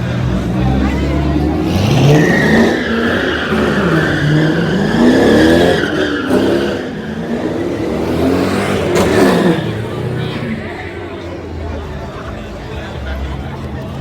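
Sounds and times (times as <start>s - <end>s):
car engine revving: 0.0s - 12.1s
tyres squealing: 1.5s - 11.2s.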